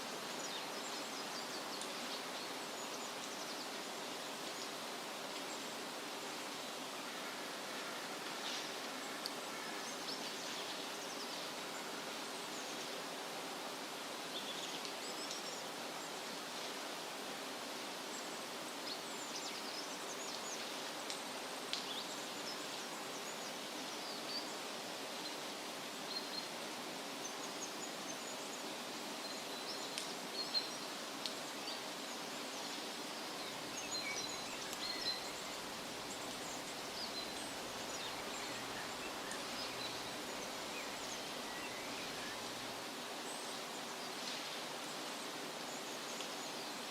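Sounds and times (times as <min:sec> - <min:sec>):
wind rustling tree leaves: 0:00.0 - 0:46.9
small birds chirping: 0:27.2 - 0:46.9.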